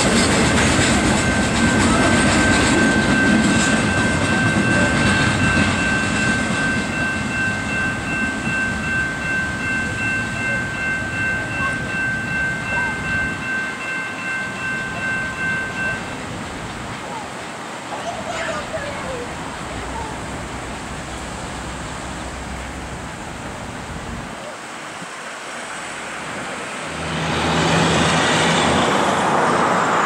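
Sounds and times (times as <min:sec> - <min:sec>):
high-pitched ringing tone: 0:00.0 - 0:16.2
freight train rumble and clatter: 0:00.0 - 0:24.4, 0:25.8 - 0:30.0.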